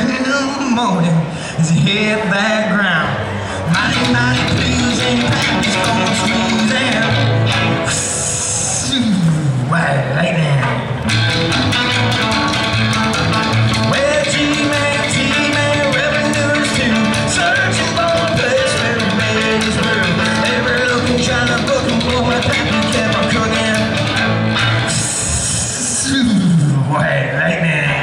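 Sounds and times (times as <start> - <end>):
bass guitar: 3.0 - 28.0
electric guitar melody: 3.7 - 8.7, 10.7 - 25.8
steady drum beat: 3.8 - 7.8, 11.1 - 25.5.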